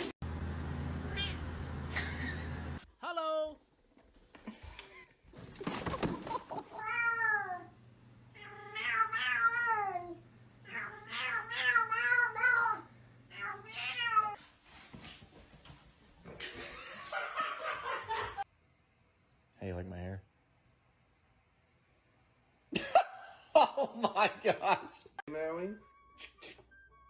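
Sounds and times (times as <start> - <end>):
cat meowing: 1.1 - 1.4, 8.4 - 14.4.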